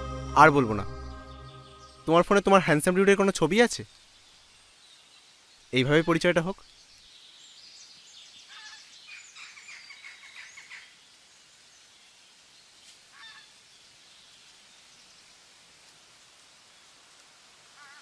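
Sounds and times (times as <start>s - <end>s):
birds chirping: 0.0s - 11.9s
faint steady hiss: 2.0s - 18.0s.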